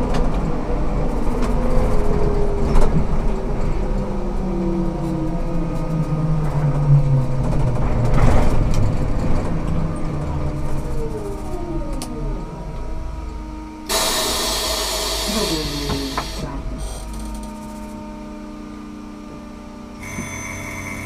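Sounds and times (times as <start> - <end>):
trolleybus drive whine: 0.0 - 21.0
compressed air hiss: 13.9 - 16.5.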